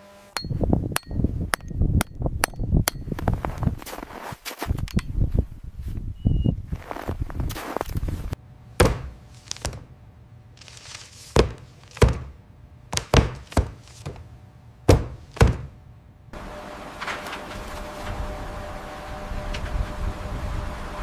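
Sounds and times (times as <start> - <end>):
steady hum with held tone: 0.0 - 3.3, 8.2 - 11.0, 13.8 - 21.0
heavy thuds: 8.8 - 9.9, 10.6 - 15.8.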